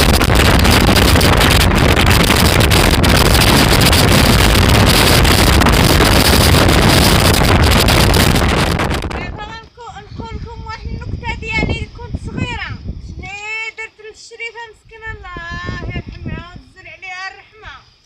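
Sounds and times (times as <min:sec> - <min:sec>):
wind buffeting microphone: 0:00.0 - 0:13.5, 0:14.7 - 0:17.1.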